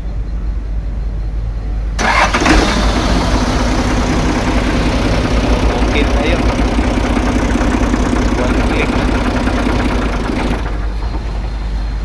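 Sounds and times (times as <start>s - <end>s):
forklift engine starting and idling: 2.0s - 12.0s.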